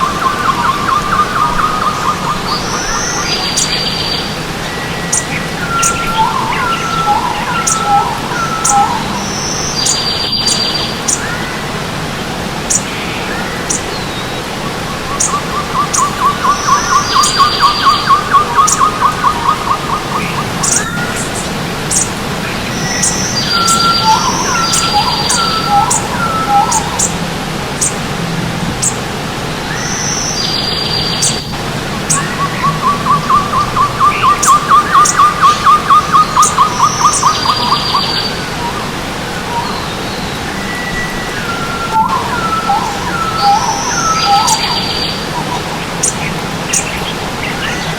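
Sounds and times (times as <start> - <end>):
bird rapid trill: 0.0 - 4.4, 5.0 - 11.3, 14.9 - 22.2, 22.8 - 27.2, 29.7 - 38.4, 41.8 - 47.1
birds singing: 0.0 - 47.9
stream water rushing: 0.0 - 47.9.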